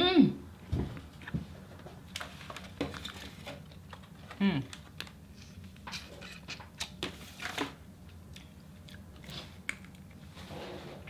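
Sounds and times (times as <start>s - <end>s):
person chewing food: 8.0s - 10.3s.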